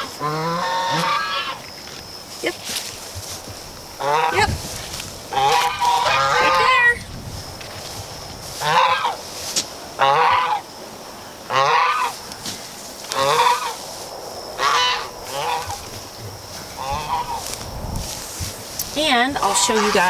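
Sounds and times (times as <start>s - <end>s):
farm fowl calling: 0.0s - 1.7s, 3.9s - 7.0s, 8.5s - 14.0s, 14.6s - 20.0s.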